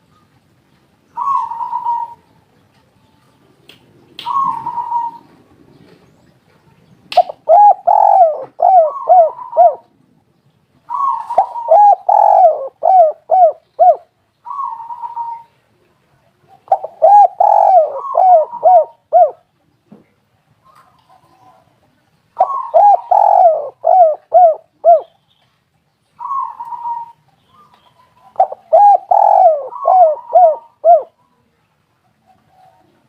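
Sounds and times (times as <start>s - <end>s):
doves cooing: 1.1s - 2.3s, 4.2s - 6.0s, 7.2s - 10.0s, 10.9s - 15.6s, 16.5s - 19.5s, 22.4s - 25.2s, 26.2s - 31.2s.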